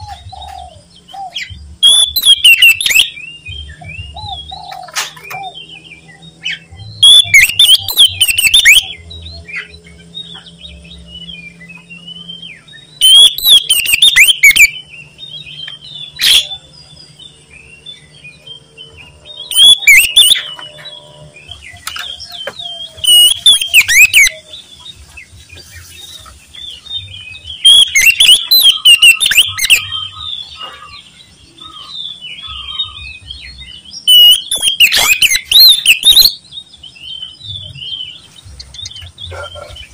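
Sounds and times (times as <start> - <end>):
bird singing whistled phrases: 0.0 - 14.9, 19.4 - 24.6, 26.8 - 31.0, 34.0 - 36.4
soft bird chirps: 0.0 - 39.9.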